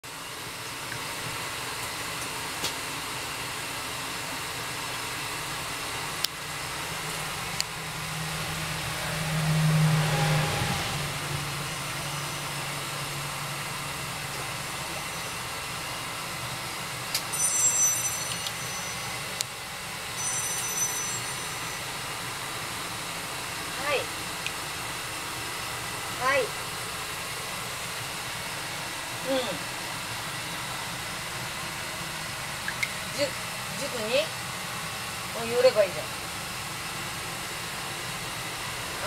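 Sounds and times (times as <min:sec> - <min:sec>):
engine humming: 0:06.1 - 0:19.5.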